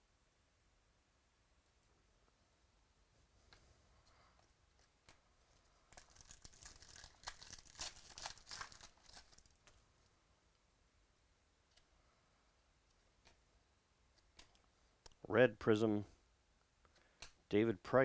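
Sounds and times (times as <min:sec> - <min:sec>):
wrapper tearing and crinkling: 0:05.9 - 0:09.8.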